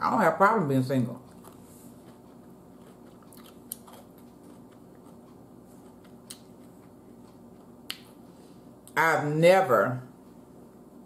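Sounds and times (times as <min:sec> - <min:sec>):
low room hum: 0:00.0 - 0:11.0
quiet chewing: 0:01.2 - 0:09.0.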